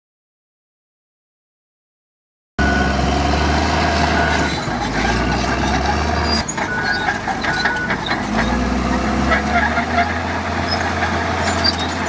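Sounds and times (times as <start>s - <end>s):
diesel machinery engine drone: 2.6s - 12.0s
short high squeaks: 4.2s - 12.0s.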